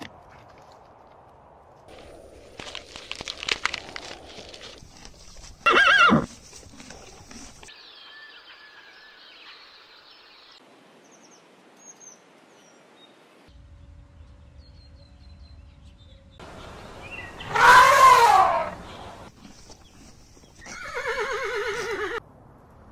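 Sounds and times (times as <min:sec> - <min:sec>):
loud wavering animal call: 0:17.4 - 0:18.9
loud animal call falling in pitch: 0:17.5 - 0:18.8.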